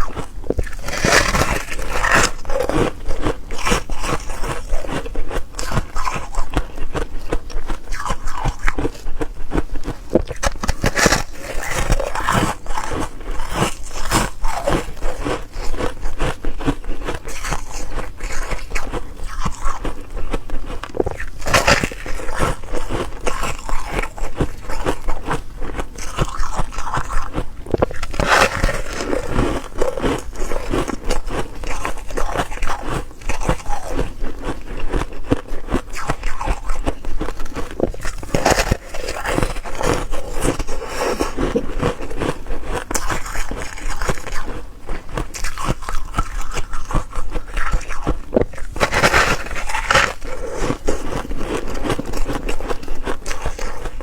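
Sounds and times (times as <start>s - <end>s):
person chewing ice cubes: 0.0s - 54.0s.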